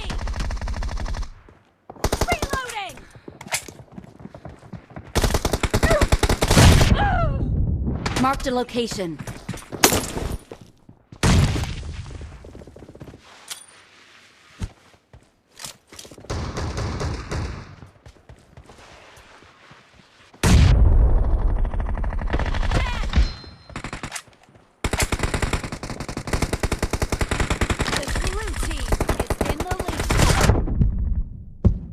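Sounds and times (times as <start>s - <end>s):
rapid automatic fire: 21.1s - 22.8s, 24.8s - 31.1s
video game gunfire: 24.8s - 31.1s.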